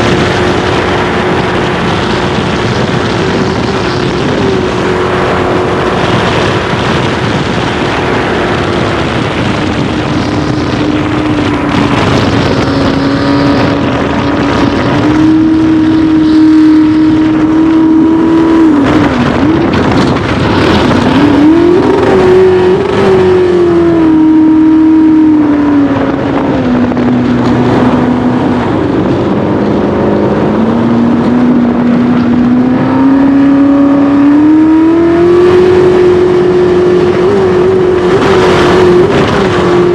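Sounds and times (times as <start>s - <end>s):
jet boat engine revving: 0.0s - 39.9s.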